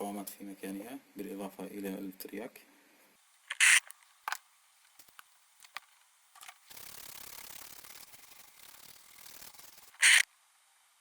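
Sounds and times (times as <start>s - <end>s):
scratchy rubbing: 3.5s - 3.8s, 6.7s - 10.2s.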